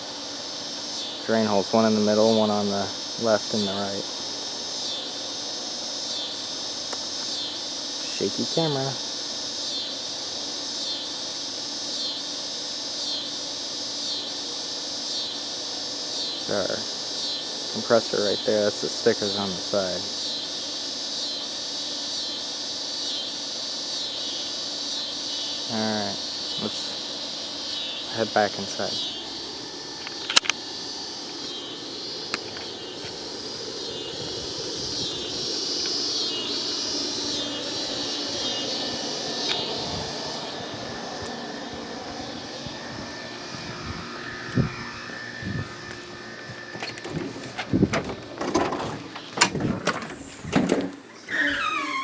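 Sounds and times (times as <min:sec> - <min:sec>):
insects chorus: 0:00.0 - 0:52.0
low steady rumble: 0:37.0 - 0:46.8.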